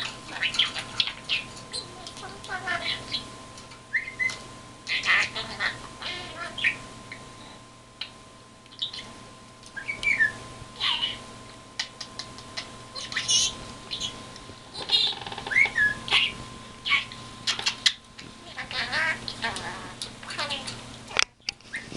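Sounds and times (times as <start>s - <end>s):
bird chirping and squawking: 0.0s - 3.3s, 3.9s - 6.9s, 8.0s - 9.1s, 9.8s - 20.8s.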